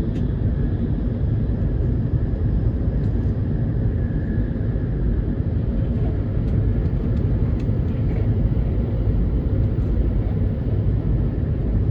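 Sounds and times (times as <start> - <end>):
train low rumble: 0.0 - 11.9.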